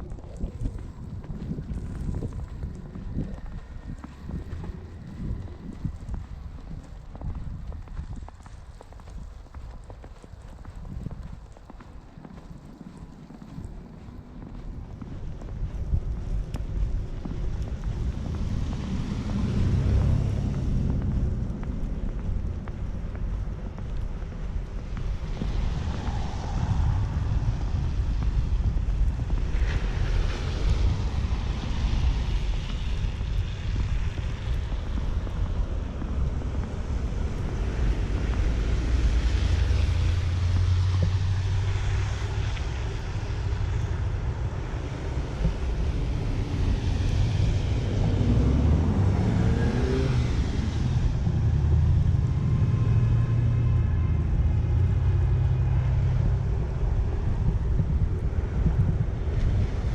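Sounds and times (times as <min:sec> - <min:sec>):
low traffic rumble: 0:00.0 - 0:59.9
vehicle engine passing: 0:16.9 - 0:59.9
tyre hiss of passing vehicles: 0:25.4 - 0:57.5.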